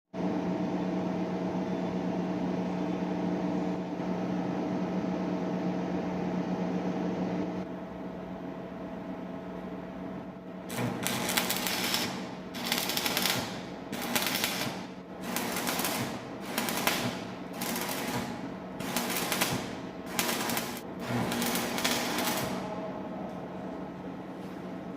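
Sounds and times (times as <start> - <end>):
welding arc crackling: 10.7 - 22.7.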